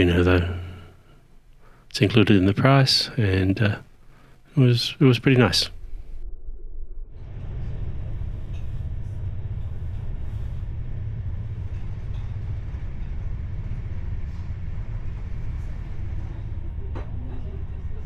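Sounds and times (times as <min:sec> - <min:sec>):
train wheels rumbling on track: 0:07.2 - 0:18.0.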